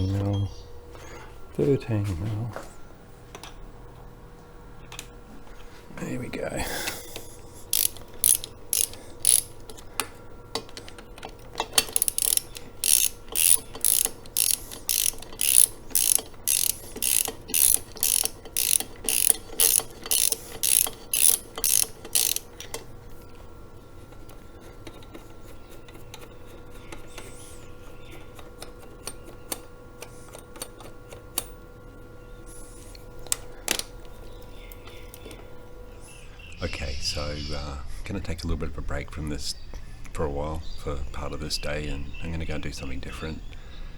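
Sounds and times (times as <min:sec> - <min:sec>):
socket ratchet clicking: 0:06.9 - 0:22.9.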